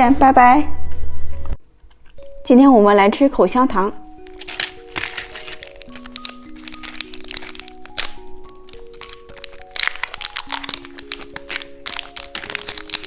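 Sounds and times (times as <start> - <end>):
light background music: 0.0 - 13.0
crinkling packaging: 4.2 - 13.0.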